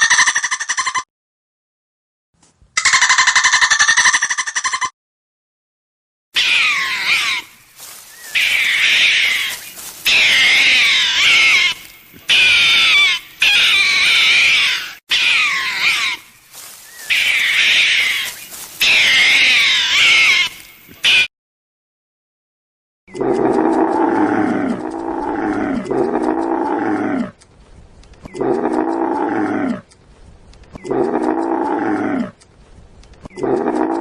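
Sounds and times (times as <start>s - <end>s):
high-pitched wavering animal calls: 0.0s - 1.0s, 6.4s - 21.3s, 23.1s - 27.4s, 28.2s - 29.9s, 30.7s - 32.4s.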